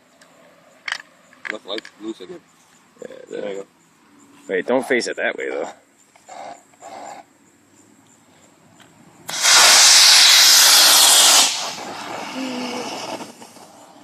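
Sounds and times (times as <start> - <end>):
rocket motor hissing: 9.3 - 14.0.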